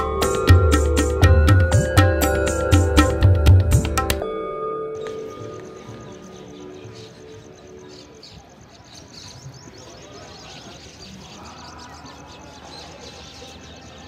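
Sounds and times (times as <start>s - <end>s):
birds chirping: 4.9s - 14.0s
murmur of voices: 5.6s - 14.0s.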